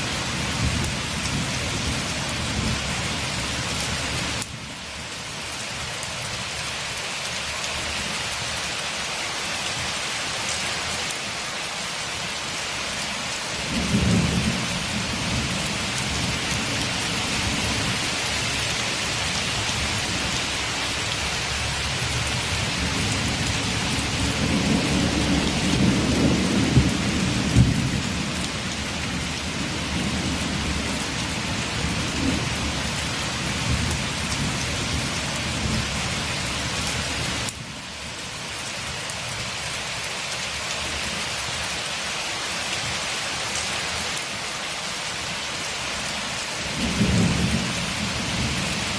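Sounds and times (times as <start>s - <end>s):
heavy rain: 0.0s - 48.9s
rolling thunder: 22.5s - 28.7s.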